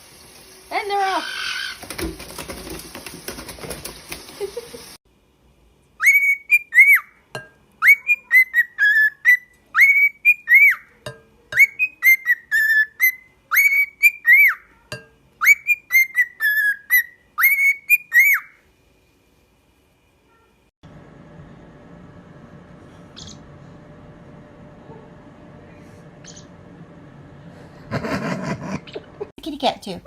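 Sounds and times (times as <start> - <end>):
parrot whistling a tune: 6.0 - 7.2, 7.8 - 10.9, 11.6 - 14.7, 15.4 - 18.6.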